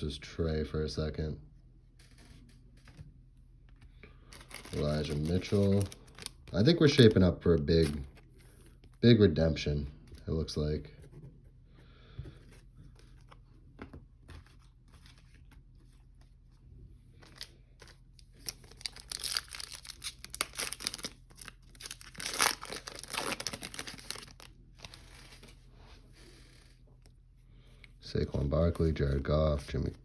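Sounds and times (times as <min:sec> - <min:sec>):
plastic wrapper tearing and crinkling: 0:04.3 - 0:08.0, 0:17.2 - 0:25.3.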